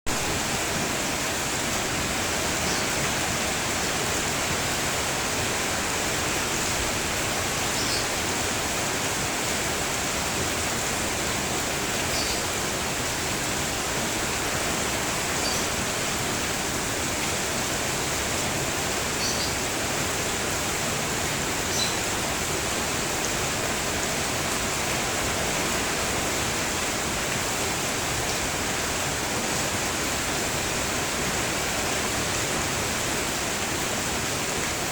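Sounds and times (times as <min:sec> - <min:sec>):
steady rain falling: 0:00.1 - 0:34.9
faint bird chirps: 0:07.8 - 0:08.1, 0:12.1 - 0:12.4, 0:21.7 - 0:22.1.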